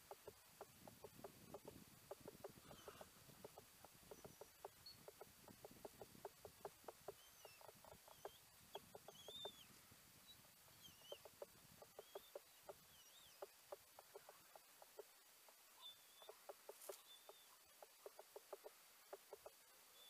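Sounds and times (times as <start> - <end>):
bird clucking notes: 0.0 - 9.7, 10.5 - 15.6, 16.2 - 19.6
thin wavering high chirps: 7.1 - 13.6.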